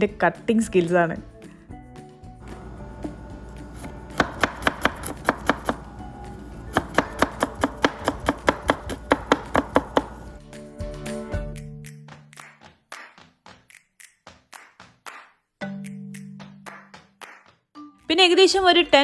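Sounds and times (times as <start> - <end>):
background music: 0.0 - 19.0
knife chopping on cutting board: 2.4 - 10.4.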